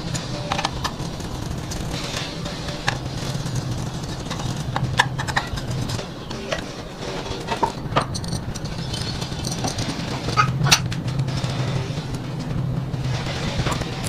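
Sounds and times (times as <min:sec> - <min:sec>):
metallic clicks and knocks: 0:00.0 - 0:12.6
small engine running: 0:00.0 - 0:14.0.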